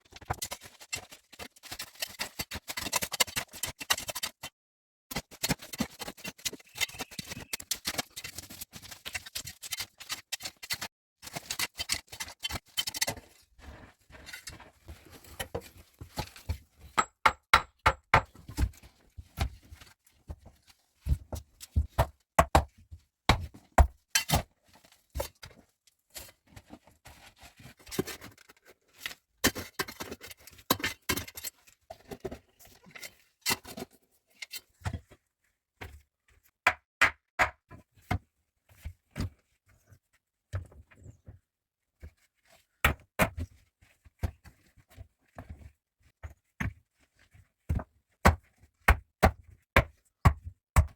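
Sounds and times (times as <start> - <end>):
objects being handled: 5.1 - 17.4.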